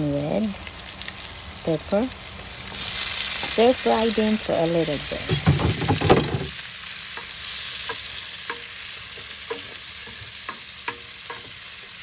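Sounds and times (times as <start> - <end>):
vegetables sizzling in hot oil: 0.0 - 12.0
utensil scraping across pan: 5.3 - 12.0.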